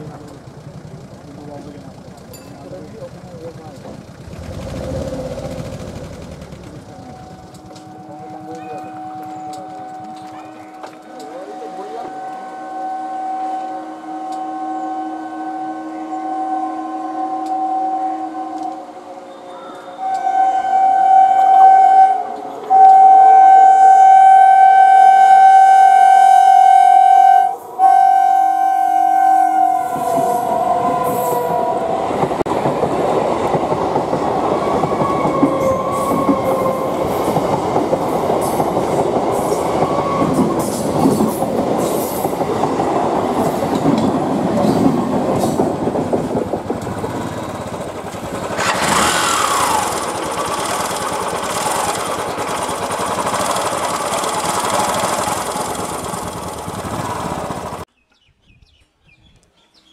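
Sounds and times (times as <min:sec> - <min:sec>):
wheels clicking over rail joints: 0:00.0 - 0:12.5, 0:29.6 - 0:57.9
train rushing past: 0:00.0 - 0:57.9
train horn blast: 0:06.8 - 0:32.5, 0:34.7 - 0:37.7.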